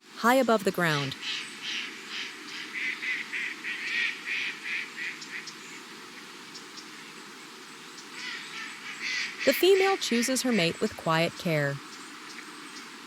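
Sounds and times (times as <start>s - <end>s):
steady background hiss: 0.0s - 13.0s
ducks calling: 0.4s - 5.7s, 8.0s - 13.0s.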